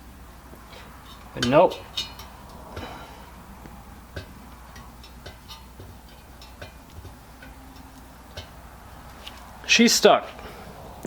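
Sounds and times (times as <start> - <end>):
metallic ticks and clicks from stove: 0.5 - 9.6
person speaking: 1.3 - 1.9.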